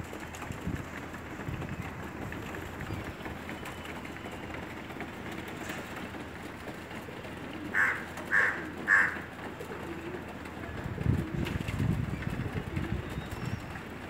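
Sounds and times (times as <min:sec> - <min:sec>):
outdoor background hum: 0:00.0 - 0:14.0
crow cawing: 0:07.7 - 0:09.3.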